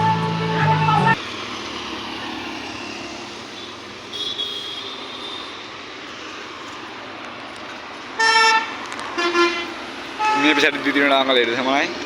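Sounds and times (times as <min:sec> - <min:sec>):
road traffic engines: 0:00.0 - 0:12.0
vehicle horn toot: 0:04.1 - 0:05.6, 0:08.2 - 0:10.7.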